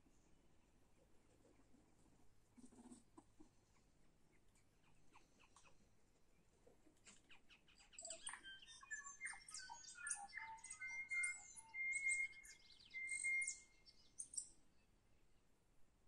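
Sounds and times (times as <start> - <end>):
songbird singing: 7.0 - 14.8.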